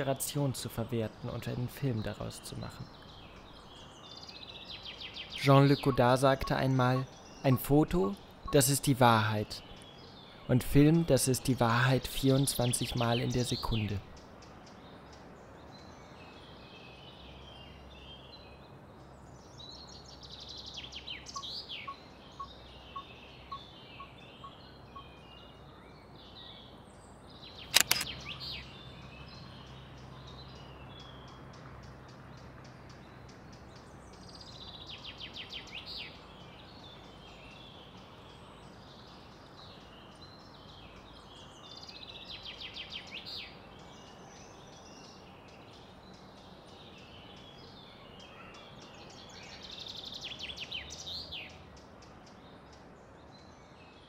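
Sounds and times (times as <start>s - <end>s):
small birds chirping: 0.0s - 54.0s
sharp click: 27.7s - 28.2s.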